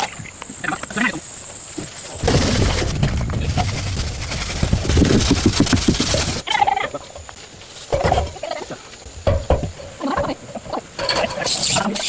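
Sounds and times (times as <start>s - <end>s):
poultry calling: 0.0s - 1.9s, 6.2s - 7.2s.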